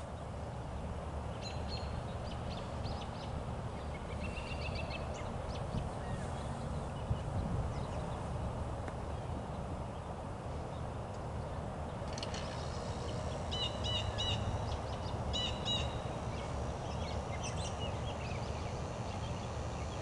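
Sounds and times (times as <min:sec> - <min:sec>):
steady low rumble: 0:00.0 - 0:20.0
birds chirping sharply: 0:10.7 - 0:20.0.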